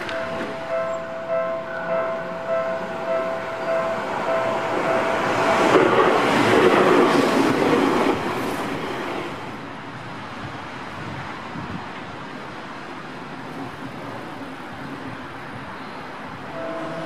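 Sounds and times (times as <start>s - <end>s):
steady pitched tone: 0.0s - 6.0s, 16.5s - 17.0s
electric train passing: 0.0s - 17.0s.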